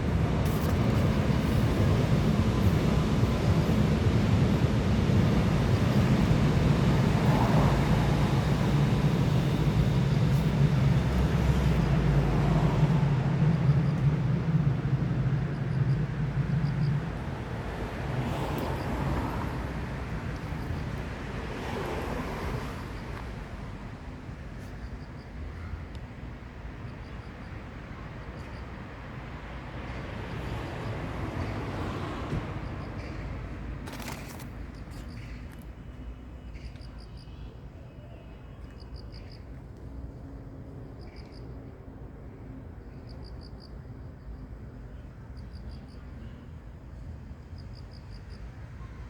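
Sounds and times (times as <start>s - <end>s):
outdoor rushing noise: 0.0s - 24.8s.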